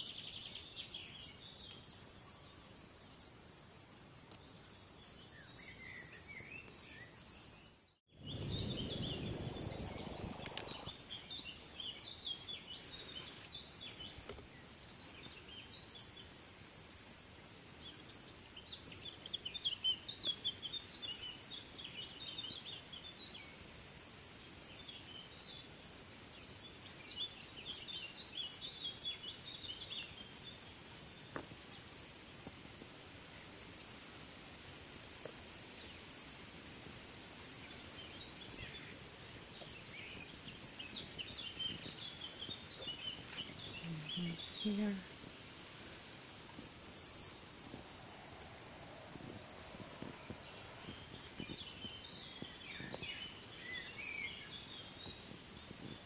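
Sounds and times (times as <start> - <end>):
songbirds chirping: 0.0 - 56.0
loud low rumbling noise: 8.2 - 10.9.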